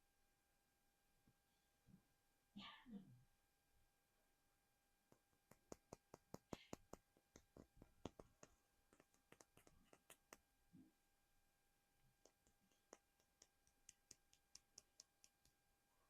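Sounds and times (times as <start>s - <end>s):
fingers tapping hard figure: 5.1s - 10.5s, 12.2s - 15.6s.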